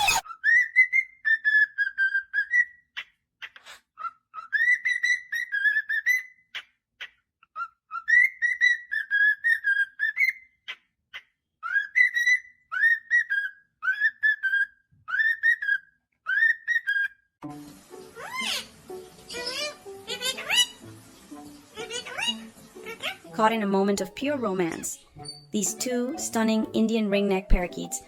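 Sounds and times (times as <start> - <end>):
parrot whistling: 18.0 - 20.8.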